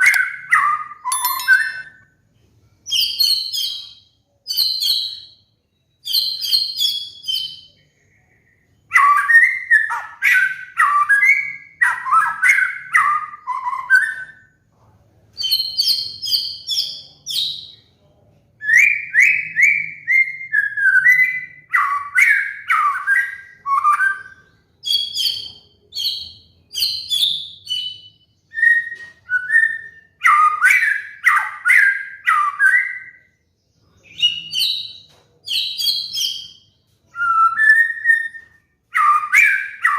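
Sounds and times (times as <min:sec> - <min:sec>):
bird singing whistled phrases: 0:00.0 - 0:02.1, 0:02.9 - 0:14.6, 0:18.6 - 0:39.9.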